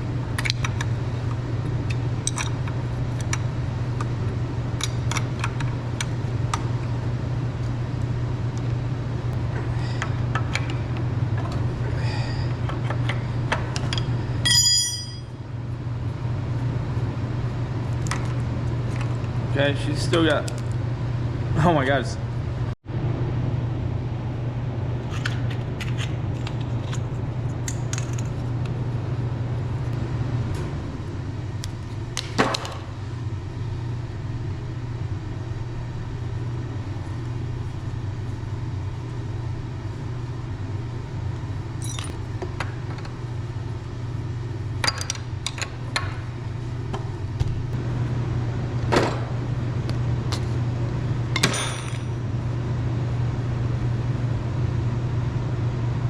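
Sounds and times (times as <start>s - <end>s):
steady low hum: 0.0s - 56.0s
metal tools clinking: 14.5s - 15.3s, 41.8s - 42.2s.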